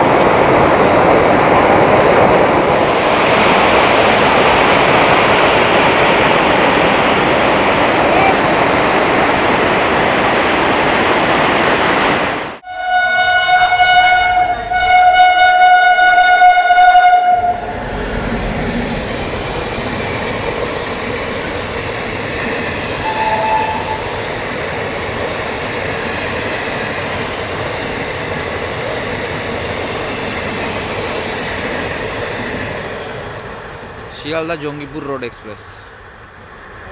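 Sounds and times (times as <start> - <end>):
train passing: 0.0 - 36.9
train horn blast: 12.6 - 17.7, 23.0 - 24.1.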